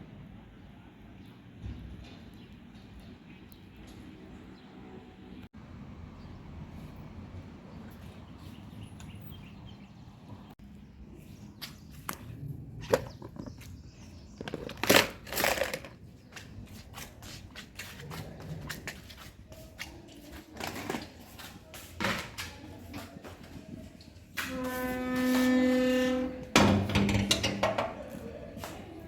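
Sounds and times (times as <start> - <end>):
rustling and scraping: 11.1 - 29.0
objects clicking and clattering: 14.4 - 16.0, 26.6 - 28.0.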